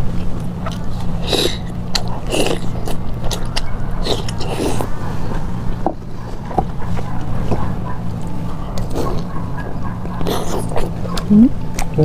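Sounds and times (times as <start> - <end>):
steady low hum: 0.0 - 12.0
person biting and chewing: 0.2 - 4.9.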